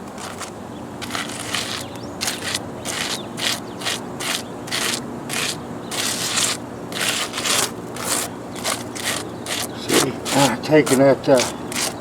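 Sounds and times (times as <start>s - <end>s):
tool scraping wet concrete: 0.0s - 12.0s.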